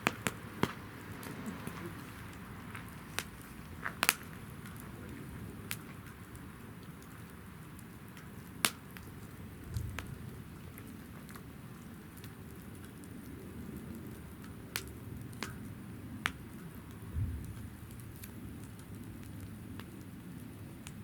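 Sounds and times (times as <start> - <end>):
fire crackles and pops: 0.0 - 21.0
flames rushing: 0.0 - 21.0.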